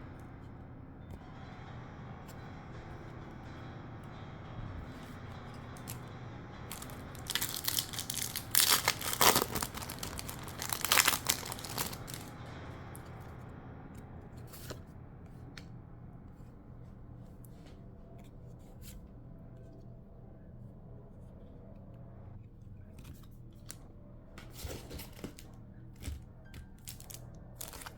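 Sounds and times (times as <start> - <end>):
foil wrapper tearing: 6.7 - 12.3, 26.8 - 27.9.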